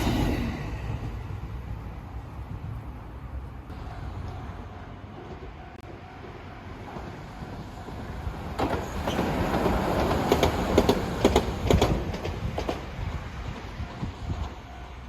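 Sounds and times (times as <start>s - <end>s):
train passing rumble: 0.0s - 15.0s
train wheels clicking over rail joints: 6.2s - 14.9s.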